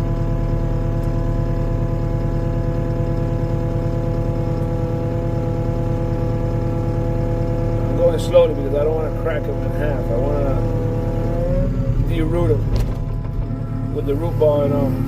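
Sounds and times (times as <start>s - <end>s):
skid steer engine droning: 0.0s - 15.0s.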